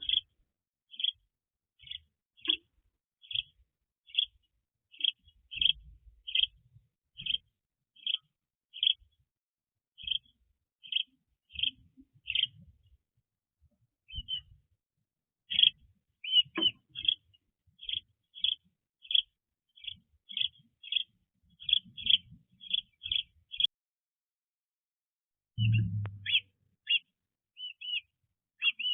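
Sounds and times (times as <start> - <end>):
small bird chirping: 0.0 - 1.2, 1.8 - 6.6, 7.2 - 9.2, 10.0 - 12.6, 14.1 - 14.6, 15.5 - 23.7, 25.6 - 28.9.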